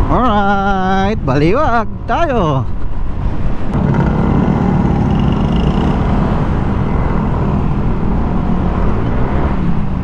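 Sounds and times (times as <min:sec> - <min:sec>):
motorcycle engine running: 0:03.8 - 0:06.5.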